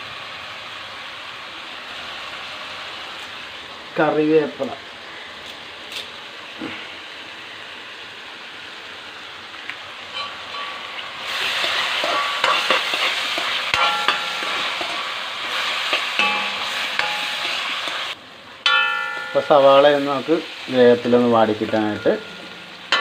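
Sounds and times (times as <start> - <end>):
food sizzling in a pan: 0.0 - 23.0
metal spoon clinking against pan: 10.1 - 10.8, 11.6 - 15.1, 15.9 - 18.1, 18.7 - 19.8, 21.7 - 23.0.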